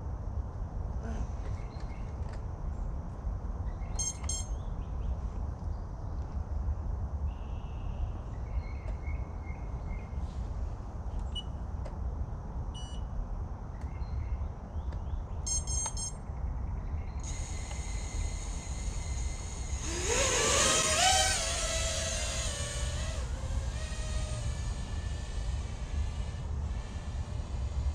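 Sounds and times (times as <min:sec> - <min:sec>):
short electronic beep: 0:04.0 - 0:04.6, 0:15.5 - 0:16.2
drone motors whining: 0:17.2 - 0:27.9.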